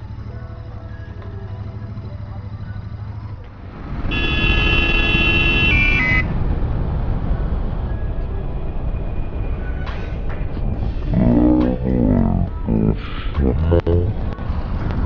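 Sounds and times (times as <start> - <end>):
motorcycle engine rumble: 0.0 - 15.0
vehicle horn: 4.1 - 6.3.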